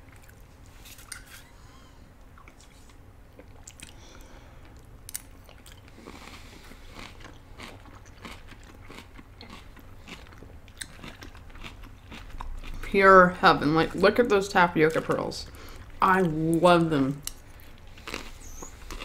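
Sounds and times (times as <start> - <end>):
chewing: 2.3 - 12.9, 17.2 - 19.0.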